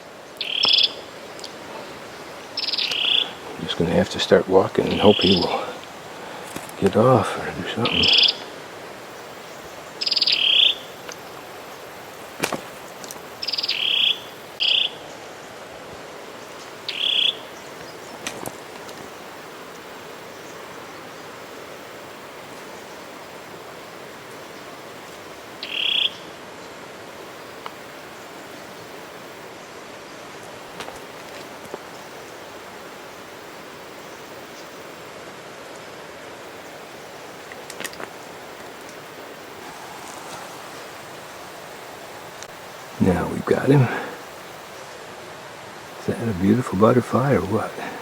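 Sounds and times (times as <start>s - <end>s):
steady outdoor hiss: 0.0s - 48.0s
frog croaking: 0.4s - 1.0s, 2.5s - 11.4s, 13.4s - 15.0s, 16.8s - 17.6s, 25.6s - 26.2s, 39.0s - 44.8s, 45.9s - 48.0s.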